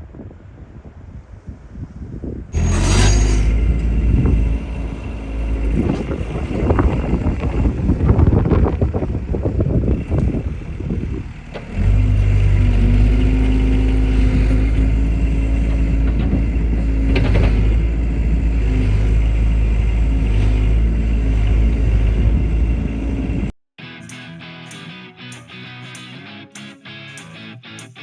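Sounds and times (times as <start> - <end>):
diesel engine running: 2.6 - 23.6.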